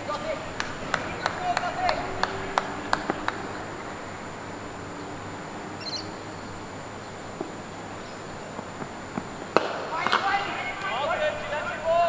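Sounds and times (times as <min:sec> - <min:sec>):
open-air background noise: 0:00.0 - 0:12.0
high bird chirp: 0:05.8 - 0:07.2.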